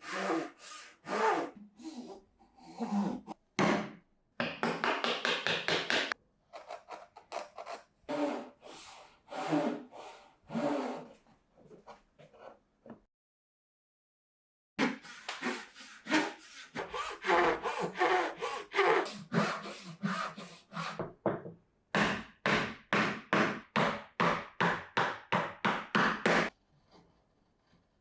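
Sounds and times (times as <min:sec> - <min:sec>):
hand saw cutting wood: 0:00.0 - 0:02.2, 0:06.6 - 0:11.1, 0:14.8 - 0:21.0.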